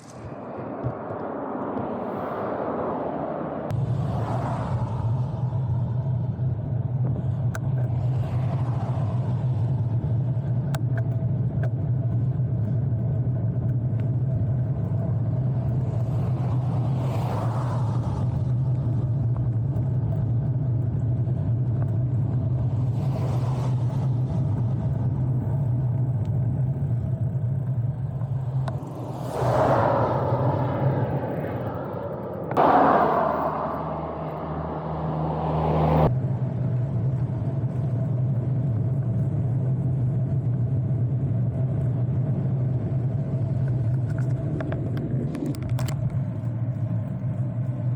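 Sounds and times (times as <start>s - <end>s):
cars passing by: 0.0s - 10.6s, 14.4s - 37.2s
steady low rumble: 0.0s - 47.9s.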